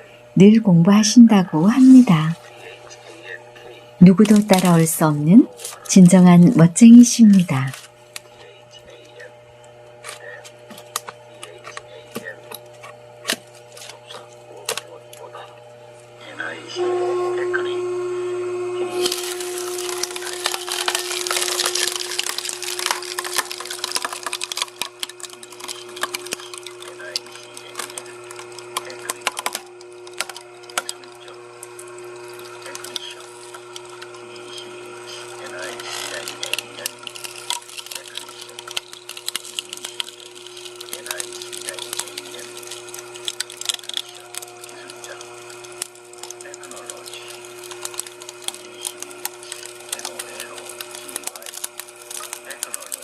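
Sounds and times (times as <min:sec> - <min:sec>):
machine humming: 0:00.0 - 0:53.0
log cracking and splintering: 0:18.9 - 0:53.0.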